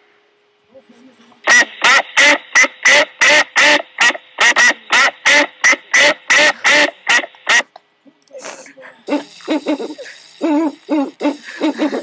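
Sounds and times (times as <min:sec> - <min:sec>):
duck-like quacking: 0:01.5 - 0:07.7.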